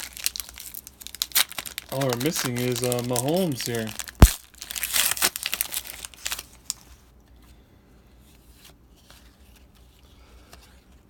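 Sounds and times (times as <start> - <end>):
trading cards rustling and clicking: 1.6 - 4.4.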